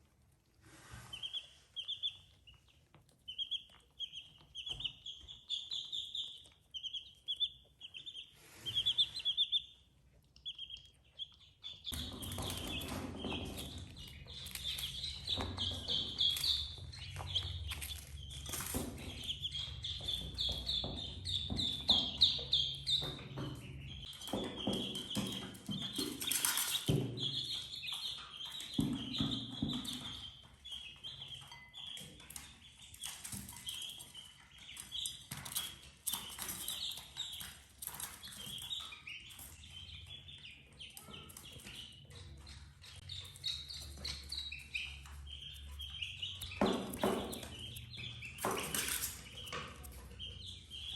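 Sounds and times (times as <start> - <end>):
baby chicks peeping: 0.0 - 50.9.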